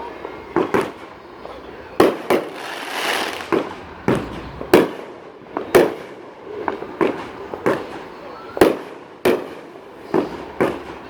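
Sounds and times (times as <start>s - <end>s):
fireworks hissing crackle: 0.0s - 8.2s
fireworks bangs: 0.5s - 11.0s.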